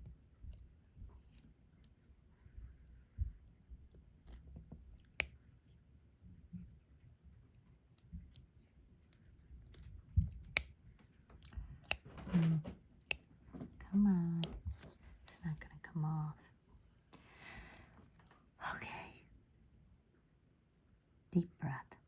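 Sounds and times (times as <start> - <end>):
pen clicks and taps: 2.7 - 5.5, 7.8 - 15.5.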